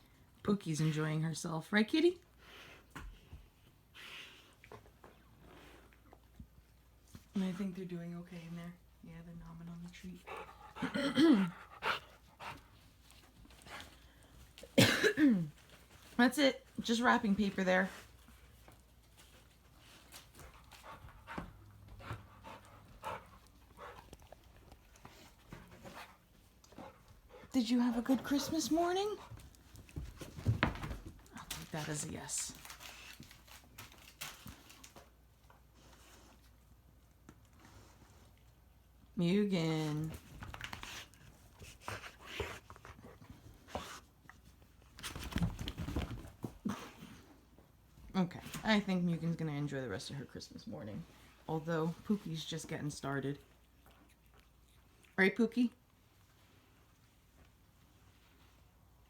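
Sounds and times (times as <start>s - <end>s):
pets rustling among wrapping paper: 27.6s - 36.6s.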